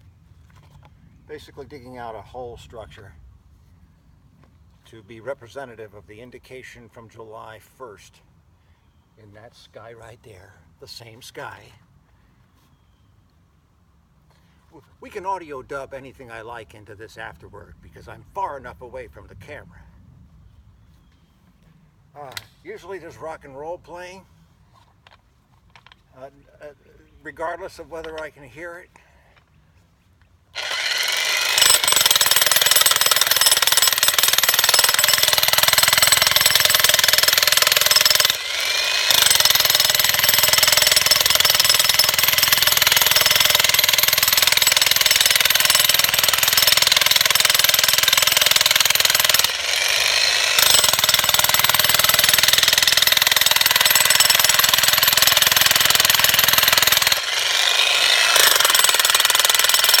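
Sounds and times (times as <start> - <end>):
jackhammer hammering stone: 30.6 - 60.0.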